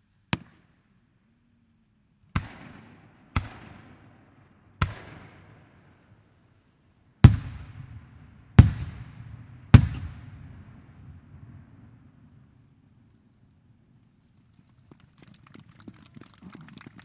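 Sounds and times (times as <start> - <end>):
firework bangs echoing: 7.2 - 11.6.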